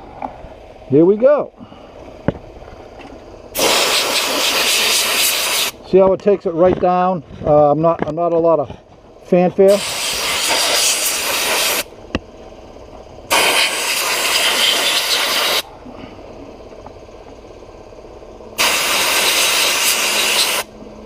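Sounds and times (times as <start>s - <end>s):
bead blast gun hissing: 3.6s - 5.8s, 9.7s - 11.9s, 13.3s - 15.7s, 18.6s - 20.7s.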